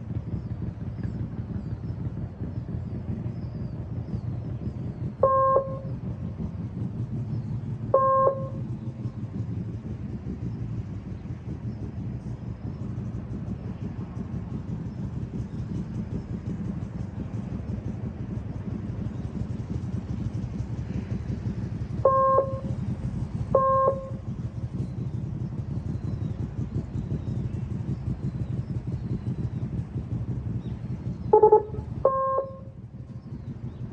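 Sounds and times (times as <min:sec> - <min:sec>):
motorcycle engine running: 0:00.0 - 0:33.9
short beeps: 0:08.0 - 0:08.6, 0:31.4 - 0:32.6.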